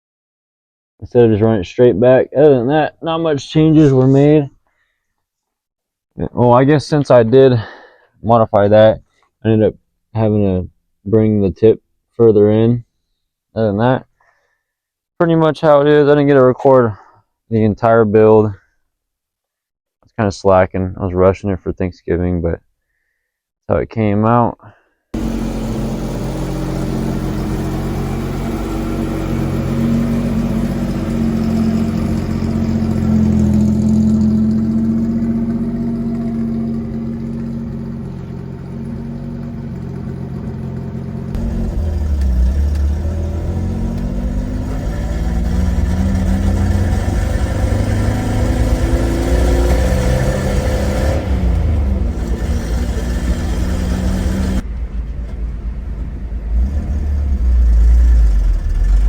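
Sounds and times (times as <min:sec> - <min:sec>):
pickup engine revving: 0:25.2 - 0:54.6, 0:56.5 - 0:59.0.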